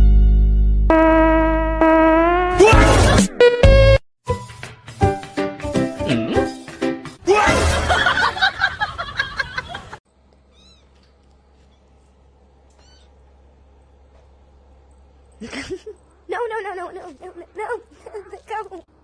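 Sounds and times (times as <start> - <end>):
cat meowing loudly: 10.5 - 11.0.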